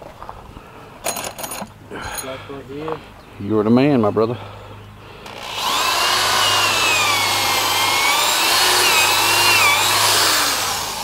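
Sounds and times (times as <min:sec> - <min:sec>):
power tool whining: 0:05.2 - 0:11.0.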